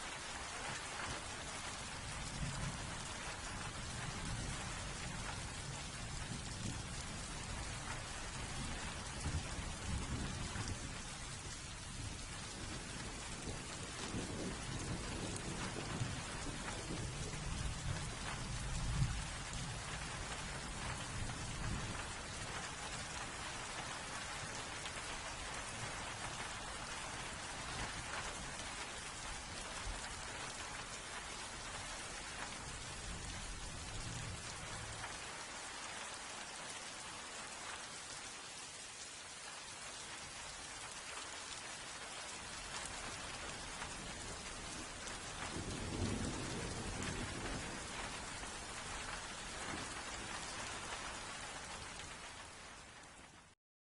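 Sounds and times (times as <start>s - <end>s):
steady rain pouring: 0.0s - 53.6s
low thunder rumbles: 1.9s - 23.7s, 43.1s - 51.2s.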